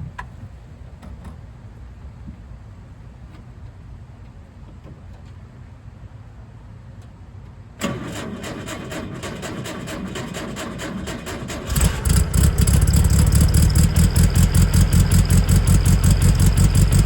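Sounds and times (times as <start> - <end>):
low background hum: 0.0 - 8.1
car engine cranking: 7.8 - 17.0.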